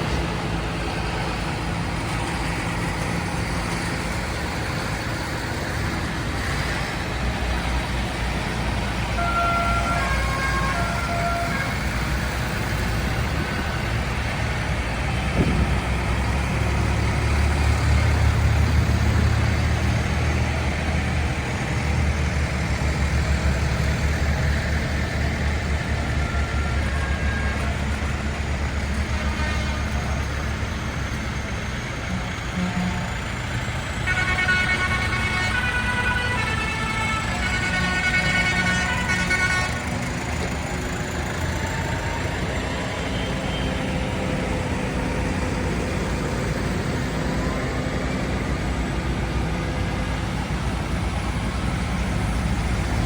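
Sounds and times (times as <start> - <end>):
tractor engines rumbling: 0.0 - 53.0
vehicle horn toots: 9.2 - 11.8, 29.1 - 30.0, 34.1 - 39.8.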